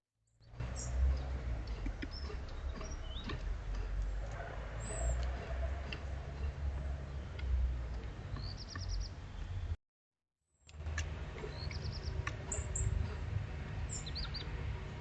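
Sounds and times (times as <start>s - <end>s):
garden birds chirping: 0.3s - 9.8s, 10.6s - 15.0s
steady low rumble: 10.8s - 15.0s.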